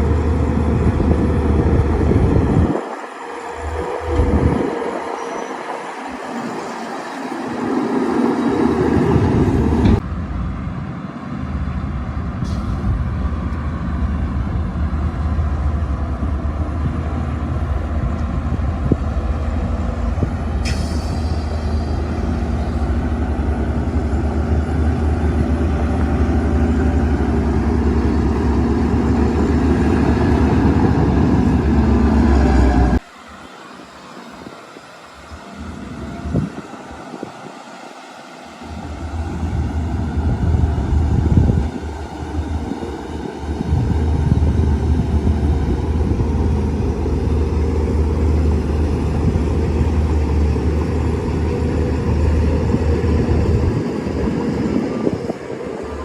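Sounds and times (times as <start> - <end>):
bulldozer diesel engine rumbling: 0.0 - 37.6, 38.4 - 56.0.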